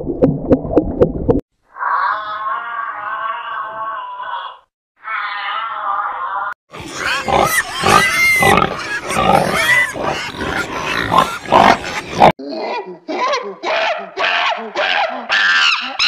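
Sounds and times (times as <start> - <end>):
pigs grunting and squealing: 1.8 - 16.0
monkey high-pitched calls: 6.8 - 12.0.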